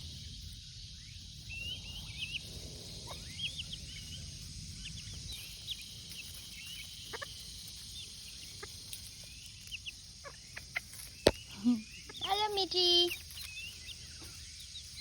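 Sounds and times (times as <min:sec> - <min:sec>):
chicks peeping: 0:00.0 - 0:15.0
sharp chick calls: 0:04.8 - 0:15.0.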